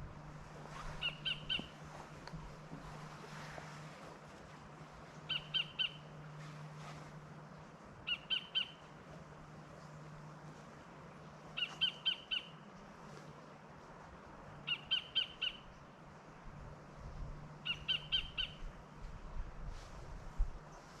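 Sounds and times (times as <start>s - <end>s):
bird calling: 0.6s - 2.1s, 5.2s - 6.8s, 8.0s - 9.0s, 11.5s - 12.7s, 14.6s - 15.8s, 17.6s - 19.0s.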